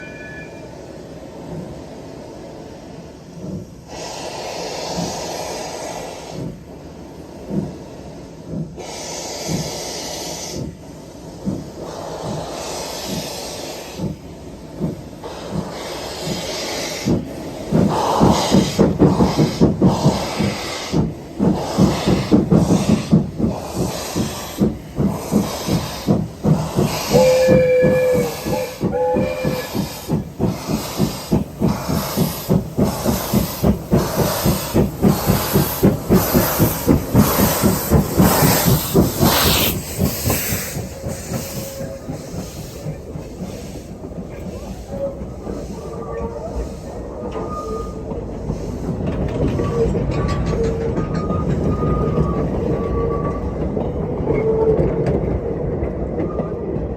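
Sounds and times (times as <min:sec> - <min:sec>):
steam whistle toots: 0:00.0 - 0:00.8, 0:27.0 - 0:30.1
steam train exhaust chuffs: 0:00.6 - 0:56.2.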